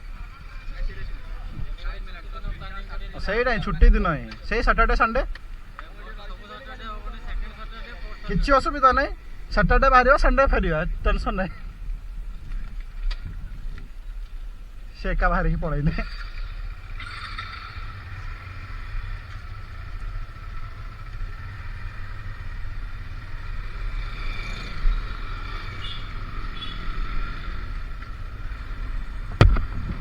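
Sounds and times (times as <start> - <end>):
motorcycle rumbling: 0.0 - 30.0
sharp knock: 29.4 - 29.9.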